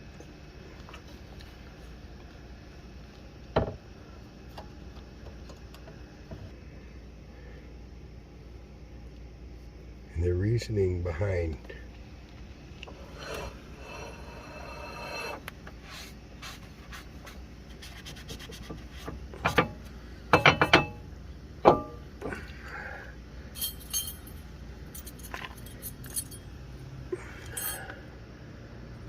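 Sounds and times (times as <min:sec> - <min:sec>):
metal tools clinking and knocking: 0:23.6 - 0:26.5, 0:27.4 - 0:27.9.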